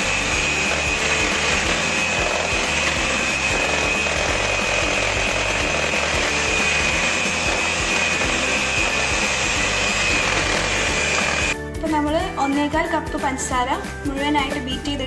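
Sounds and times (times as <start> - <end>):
electric beater motor whining: 0.0 - 11.6
background music: 0.0 - 15.0.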